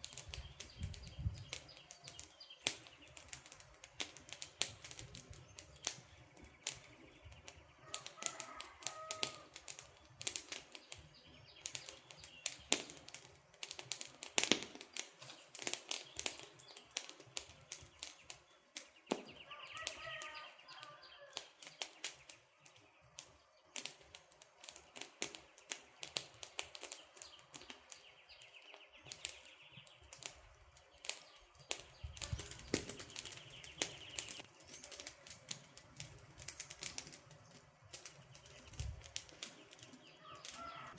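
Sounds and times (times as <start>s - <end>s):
campfire crackling and popping: 0.0s - 40.9s
bird calls: 5.2s - 10.0s, 17.6s - 23.2s, 26.8s - 35.8s, 37.3s - 40.9s.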